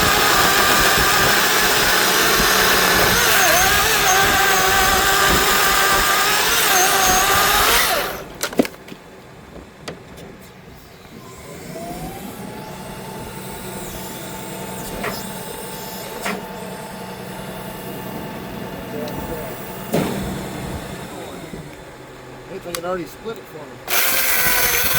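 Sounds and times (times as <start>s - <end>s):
chainsaw cutting wood: 0.0s - 8.7s, 23.9s - 24.9s
sharp knocks: 19.8s - 21.0s.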